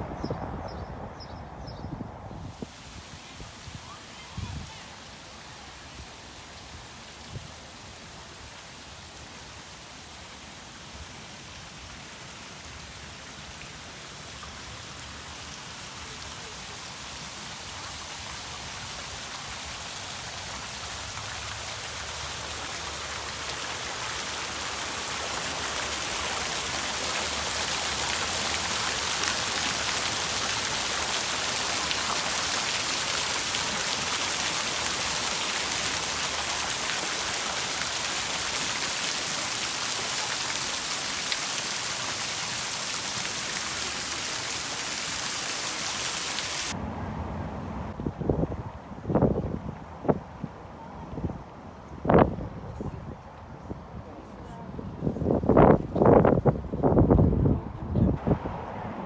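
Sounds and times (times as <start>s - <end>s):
falling water hissing: 2.6s - 47.9s.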